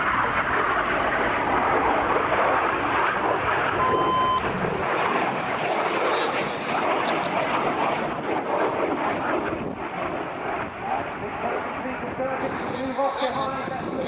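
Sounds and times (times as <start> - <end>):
jets flying overhead: 0.0 - 14.0
short electronic beep: 3.8 - 4.5.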